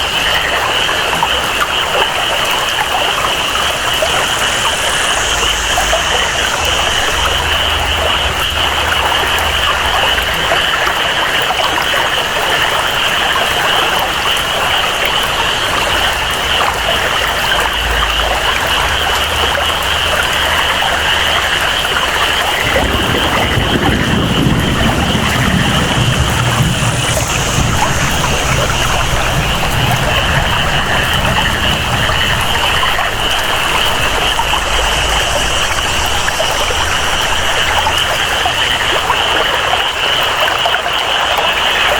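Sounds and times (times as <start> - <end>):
deep rush of water: 0.0 - 41.9
flowing water: 0.0 - 41.9
tropical rain: 0.0 - 41.9
rainforest animal chorus: 12.8 - 41.9.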